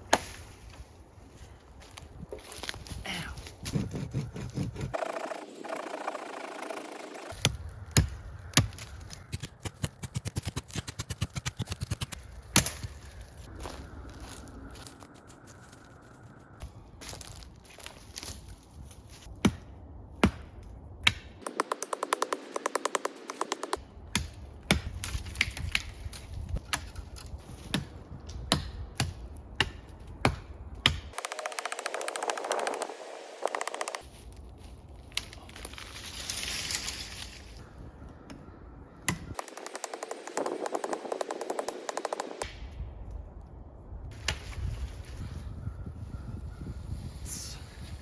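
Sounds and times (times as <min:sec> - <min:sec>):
sticks and branches snapping: 0:07.3 - 0:13.2, 0:17.0 - 0:18.6, 0:21.0 - 0:37.6, 0:39.1 - 0:42.6
wooden sticks snapping: 0:08.6 - 0:12.9
rapid clicks: 0:09.3 - 0:12.2, 0:21.4 - 0:23.8, 0:31.2 - 0:34.0, 0:39.4 - 0:42.5
wind rumble: 0:37.6 - 0:48.0.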